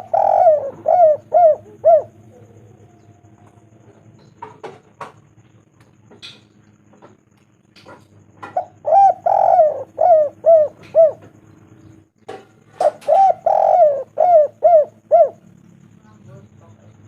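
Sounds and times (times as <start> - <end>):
dove cooing: 0.0 - 4.8, 7.9 - 12.0, 12.6 - 15.9.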